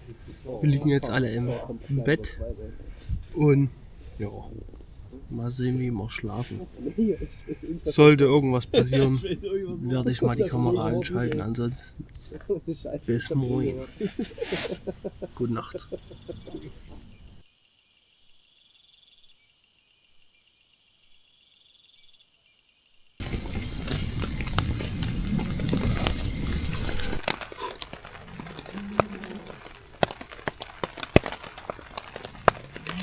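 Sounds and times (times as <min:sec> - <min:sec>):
night insects chirping: 0:13.3 - 0:33.0
rushing noise with clicks and crackles: 0:23.2 - 0:33.0.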